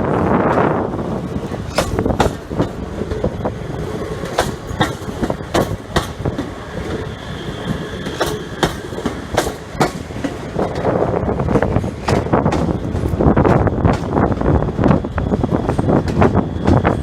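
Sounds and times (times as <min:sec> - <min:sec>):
steady rumble: 0:00.0 - 0:17.0
train wheels clacking on track: 0:00.5 - 0:17.0
faint high squeal: 0:06.5 - 0:09.0.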